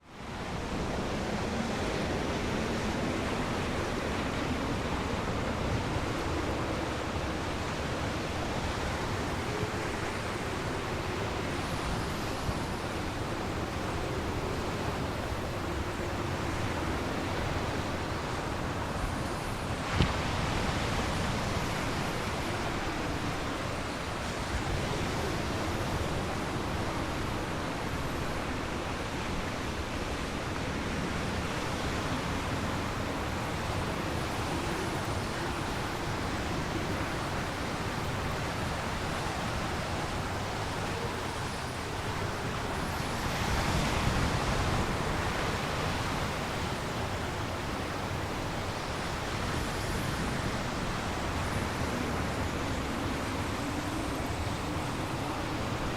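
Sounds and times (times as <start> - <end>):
storm wind: 0.0 - 55.9
waves breaking: 0.4 - 55.9.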